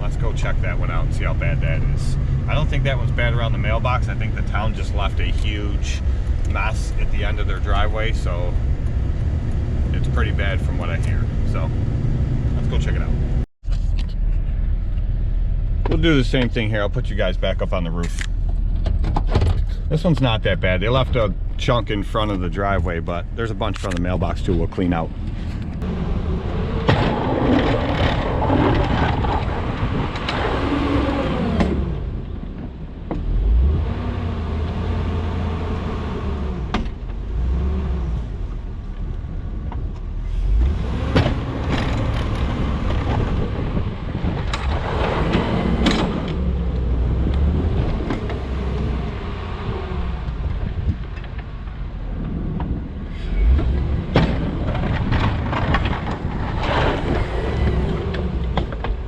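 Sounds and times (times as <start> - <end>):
truck engine revving: 19.6 - 32.3, 33.2 - 38.5, 40.2 - 51.0, 52.1 - 59.0
snow plow clanking: 26.6 - 31.0, 53.4 - 59.0.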